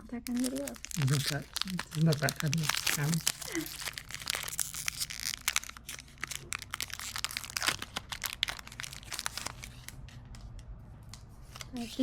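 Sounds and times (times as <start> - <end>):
foil wrapper crinkling: 0.2 - 10.0
foil wrapper tearing: 0.3 - 9.8.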